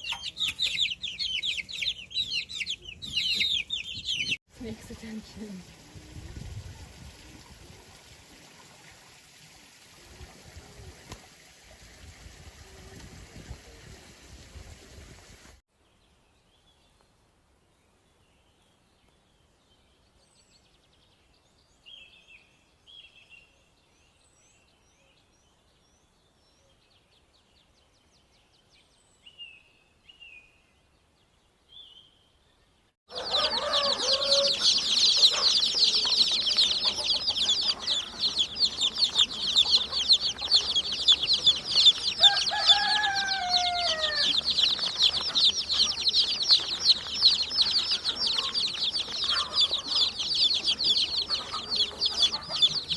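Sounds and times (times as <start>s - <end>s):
chickens peeping and clucking: 0.0s - 5.2s, 33.1s - 52.9s
longer falling bird calls: 33.1s - 52.9s.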